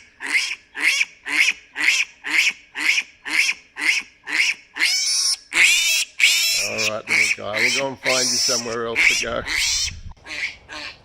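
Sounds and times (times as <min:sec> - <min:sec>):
piglet squealing: 0:04.8 - 0:11.0.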